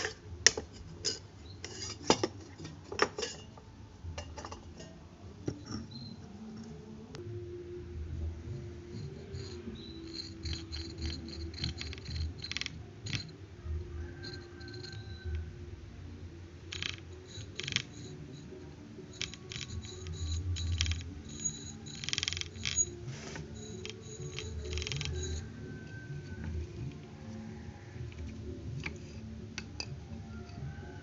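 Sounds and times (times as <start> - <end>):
small parts clicking and scraping: 0.0 - 6.8, 8.9 - 13.4, 14.1 - 15.5, 16.6 - 27.2, 28.0 - 30.7
low steady hum: 0.0 - 30.6.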